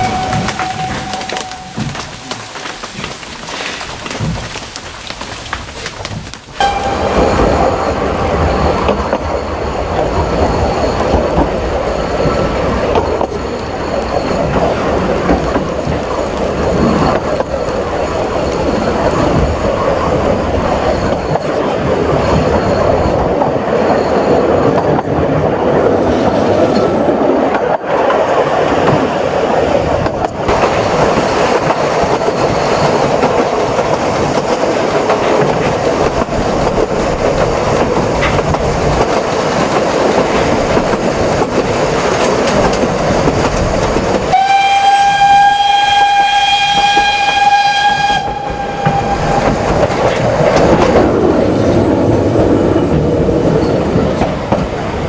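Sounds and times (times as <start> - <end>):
steam whistle: 0.0 - 2.4, 44.3 - 49.7
train clattering on rails: 0.0 - 55.0.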